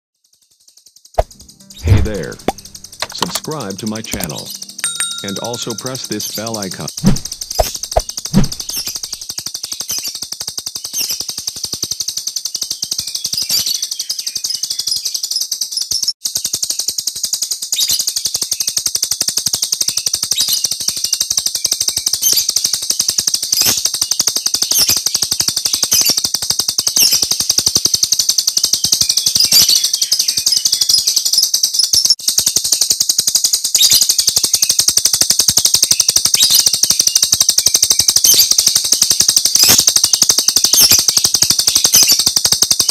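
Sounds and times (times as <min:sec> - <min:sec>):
starling chirping song: 0:01.2 - 0:09.2.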